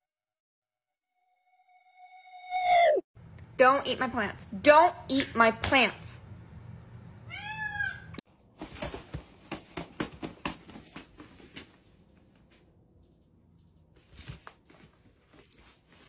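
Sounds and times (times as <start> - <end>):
fabric lining rustling: 14.0 - 16.0.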